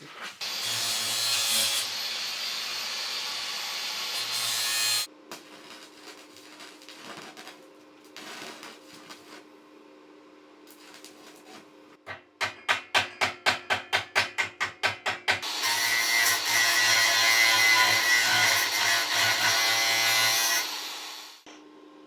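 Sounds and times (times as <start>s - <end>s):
fast sharp knocks: 12.1s - 15.4s.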